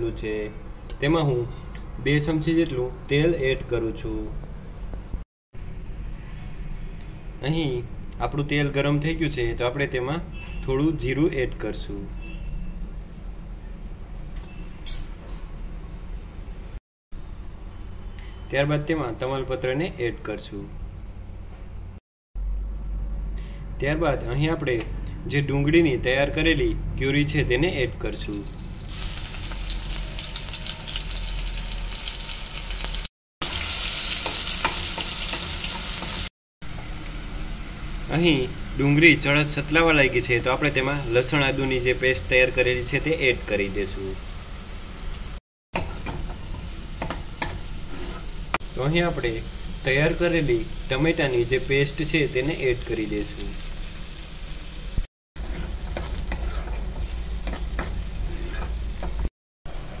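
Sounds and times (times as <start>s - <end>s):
onion sizzling in hot oil: 28.4s - 59.3s
spoon stirring: 55.4s - 59.2s.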